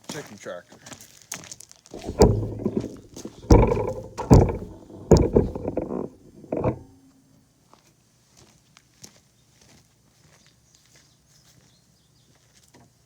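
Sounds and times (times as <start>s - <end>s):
wooden boards knocking together: 2.0s - 6.8s.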